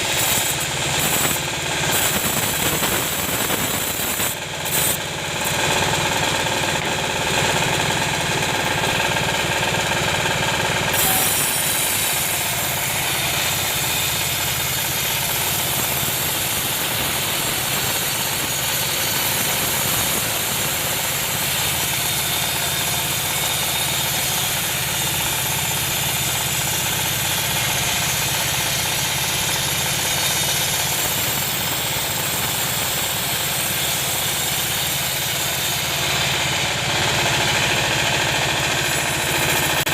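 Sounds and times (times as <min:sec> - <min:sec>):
hiss: 0:00.0 - 0:05.0, 0:10.9 - 0:36.3
sawmill engine running: 0:00.0 - 0:39.9.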